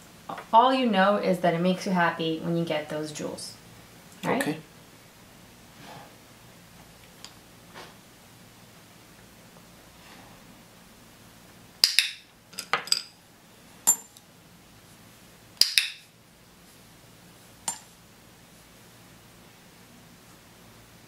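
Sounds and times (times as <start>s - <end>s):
small objects clinking on table: 11.8s - 13.1s.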